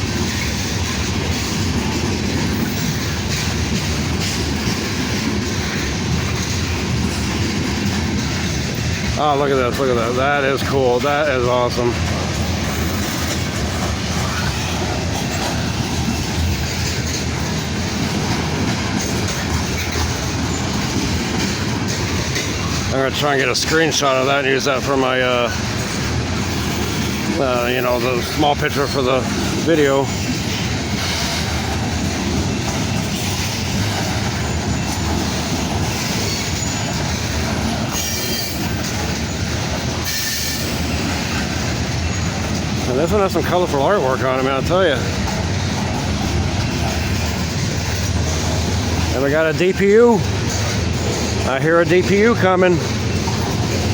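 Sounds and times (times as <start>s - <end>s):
train wheels on rails: 0.0s - 53.9s
high wheel squeal: 32.9s - 37.1s, 37.8s - 42.5s.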